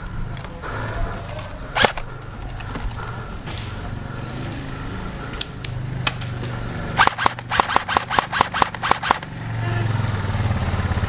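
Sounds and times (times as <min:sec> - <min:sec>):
airsoft gun shots: 0:01.8 - 0:02.0, 0:07.0 - 0:09.3.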